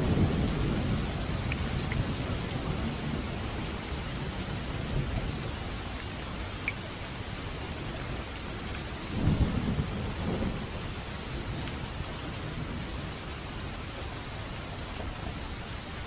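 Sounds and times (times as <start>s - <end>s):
thunder rumbling: 0.0s - 5.7s, 9.0s - 13.7s
rain falling on a roof: 0.0s - 16.0s.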